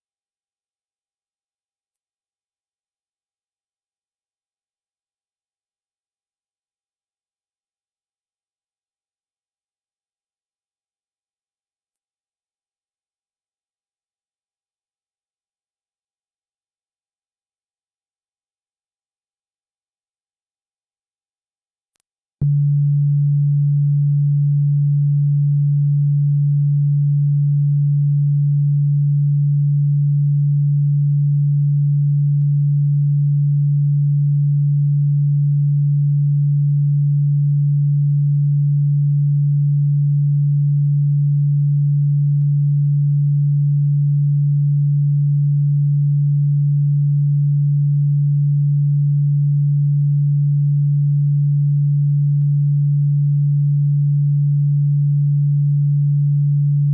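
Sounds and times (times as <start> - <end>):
low electronic sine tone: 22.0 - 56.9.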